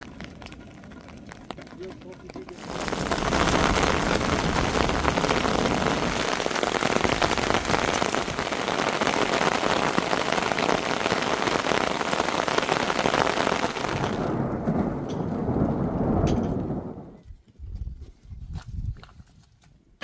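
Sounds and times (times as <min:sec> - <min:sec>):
rain falling: 0:00.0 - 0:17.2.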